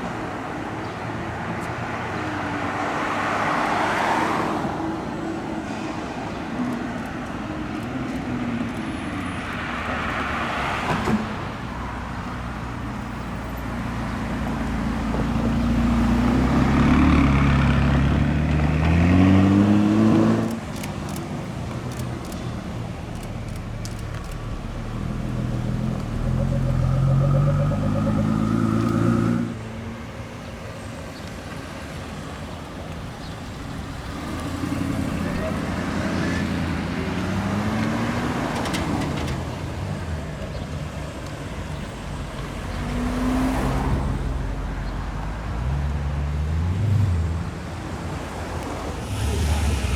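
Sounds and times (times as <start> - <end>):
sports car engines accelerating: 14.2 - 29.8, 31.8 - 49.9.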